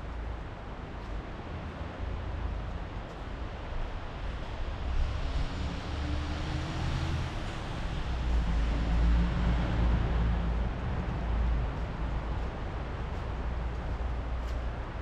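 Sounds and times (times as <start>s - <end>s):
vehicle passing by: 5.0s - 12.2s.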